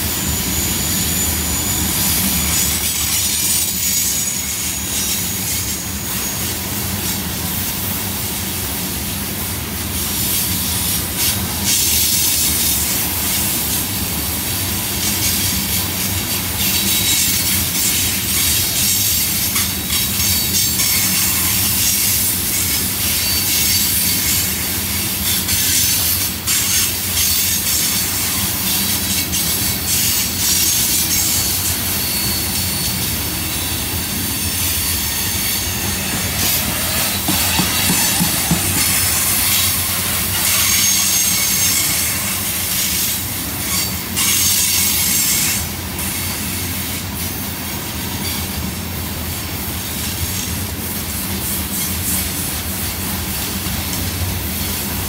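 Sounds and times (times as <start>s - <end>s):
wheel-on-rail hiss: 0.0s - 55.0s
freight cars rumbling: 26.9s - 42.2s
wheels clicking over track: 35.8s - 41.8s.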